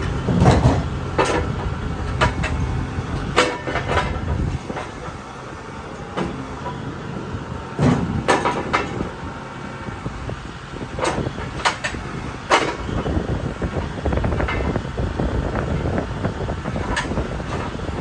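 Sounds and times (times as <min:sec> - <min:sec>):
sharp knocks and clunks: 0:00.0 - 0:05.2, 0:07.8 - 0:09.1.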